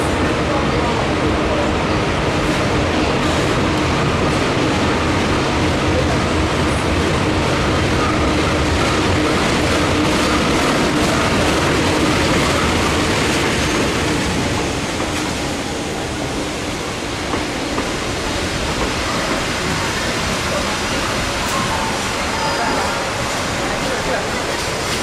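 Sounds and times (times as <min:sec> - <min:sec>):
train carriage rumbling and rattling: 0:00.0 - 0:25.0.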